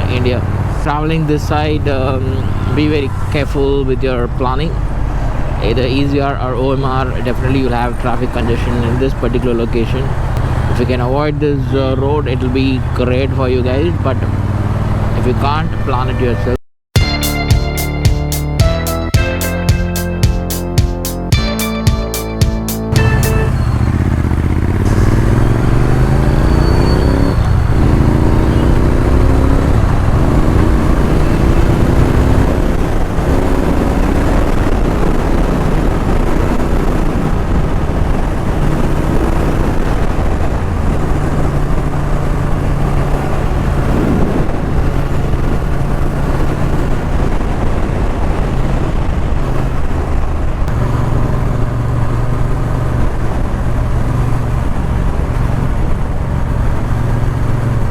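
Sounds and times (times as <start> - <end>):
motorcycle engine changing gears: 22.9 - 57.9.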